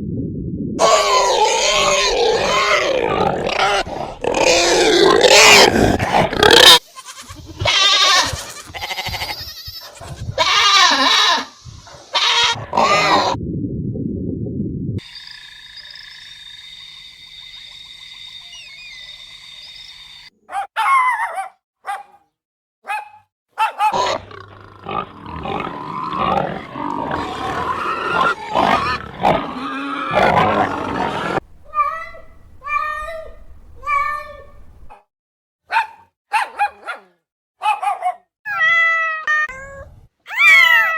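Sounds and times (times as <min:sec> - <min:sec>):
animal calls: 0:23.6 - 0:35.0.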